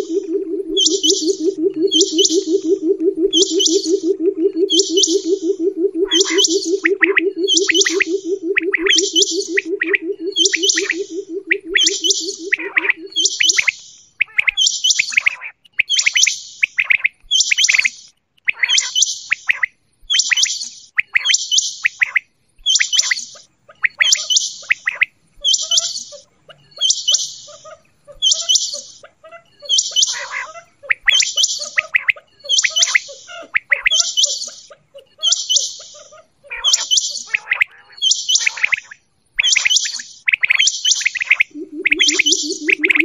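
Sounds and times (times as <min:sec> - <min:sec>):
quail calling: 0:00.0 - 0:15.5, 0:23.7 - 0:43.0.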